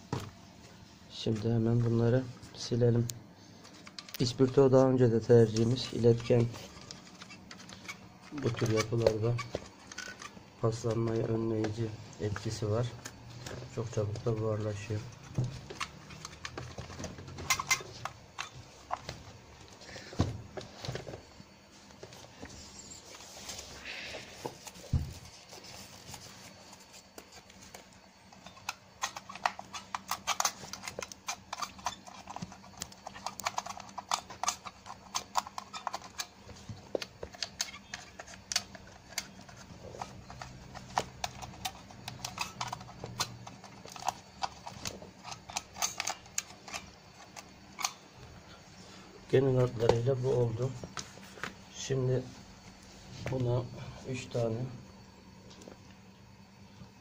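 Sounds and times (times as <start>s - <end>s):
clicks and scratchy rubbing on plastic: 3.5s - 19.2s, 24.4s - 48.0s.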